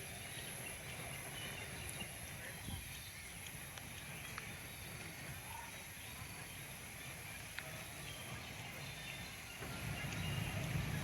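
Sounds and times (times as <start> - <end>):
murmur of distant voices: 0.0 - 11.0
small clicks of footsteps: 3.3 - 5.2, 7.3 - 7.8, 10.0 - 10.8.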